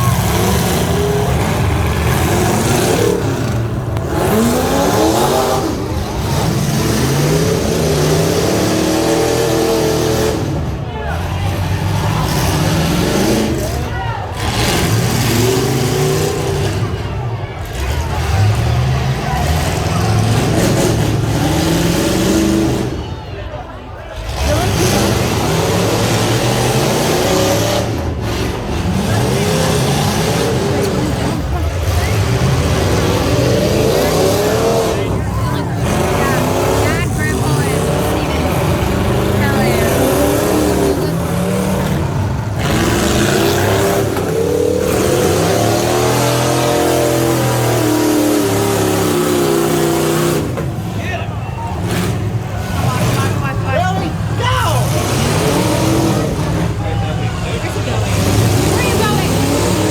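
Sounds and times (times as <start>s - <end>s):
pickup truck engine revving: 0.0s - 59.9s.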